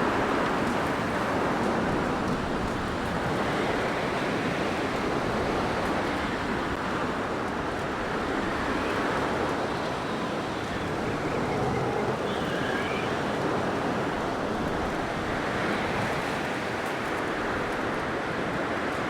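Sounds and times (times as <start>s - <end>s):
blizzard wind blowing: 1.1s - 19.0s
faint high whistling tones: 9.7s - 13.5s.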